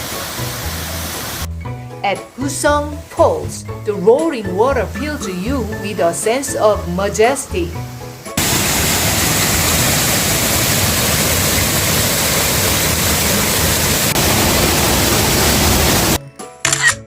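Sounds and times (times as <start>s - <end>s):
waterfall roaring: 0.0s - 1.5s, 8.4s - 16.2s.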